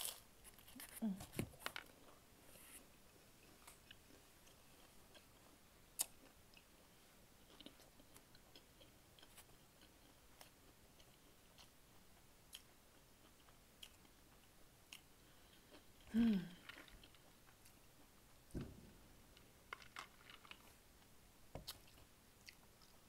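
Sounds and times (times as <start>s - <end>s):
person chewing food: 3.1s - 18.7s, 19.3s - 23.0s.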